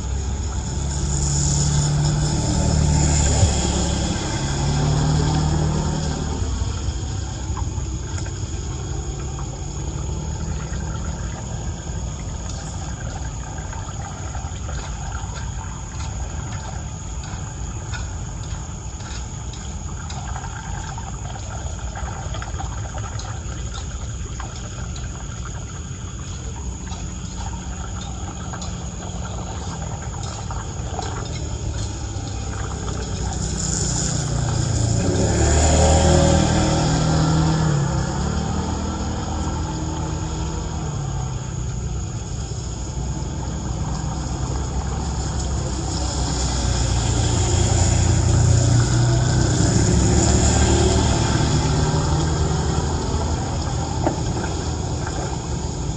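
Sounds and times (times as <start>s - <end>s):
water rushing into drain: 0.0s - 55.9s.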